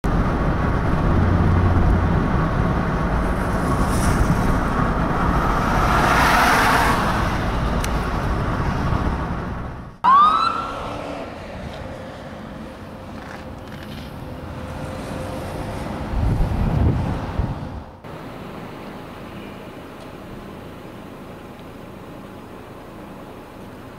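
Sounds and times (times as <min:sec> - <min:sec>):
vehicle road noise passing: 0:00.1 - 0:22.2
emergency siren whoop: 0:10.0 - 0:11.4.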